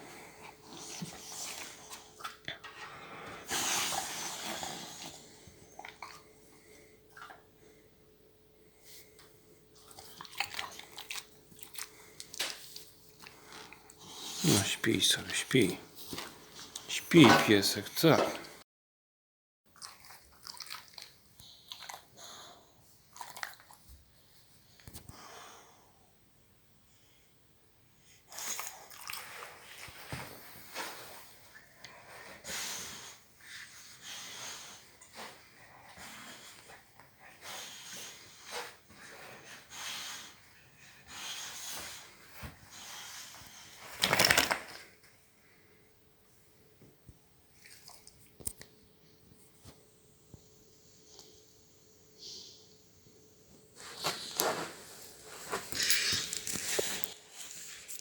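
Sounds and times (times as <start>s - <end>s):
dog licking and chewing: 9.8s - 11.9s.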